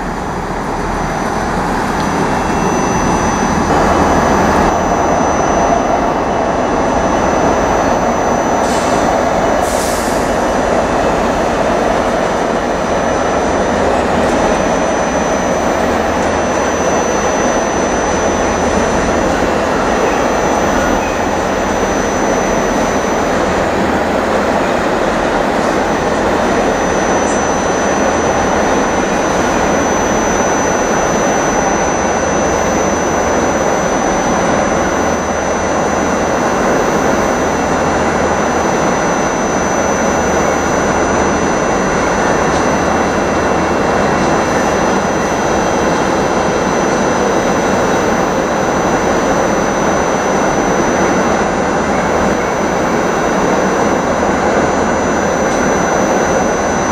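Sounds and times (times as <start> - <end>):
diesel train engine running: 0.0 - 56.9
high-pitched whine: 0.0 - 56.9.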